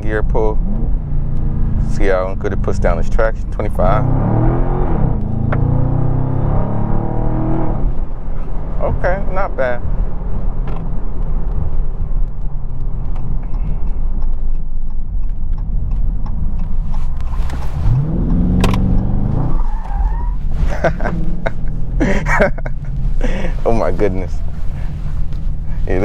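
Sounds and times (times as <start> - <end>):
car engine rumbling and revving: 0.0 - 26.0
exhaust crack: 0.0 - 26.0.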